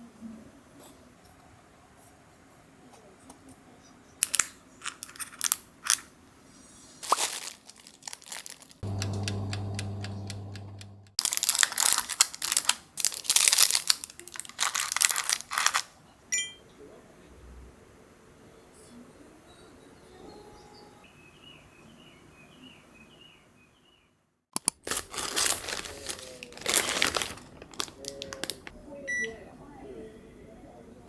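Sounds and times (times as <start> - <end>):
packaging crinkling: 4.2 - 6.1, 6.9 - 16.0, 24.6 - 29.0
electric appliance hum: 8.8 - 11.2.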